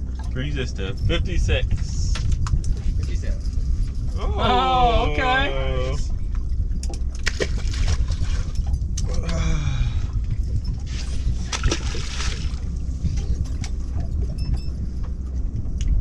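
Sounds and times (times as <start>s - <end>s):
low engine rumble: 0.0s - 16.0s
water sloshing against hull: 0.0s - 16.0s
person speaking: 4.2s - 5.8s.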